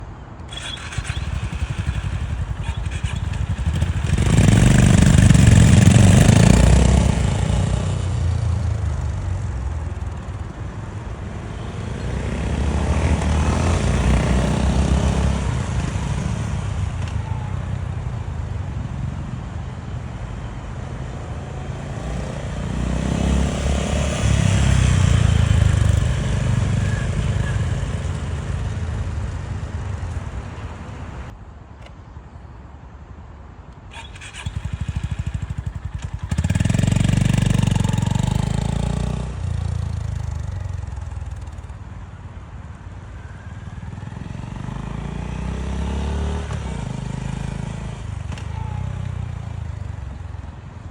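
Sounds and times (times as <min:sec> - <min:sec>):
motorcycle engine running: 0:00.5 - 0:17.5, 0:34.0 - 0:41.7.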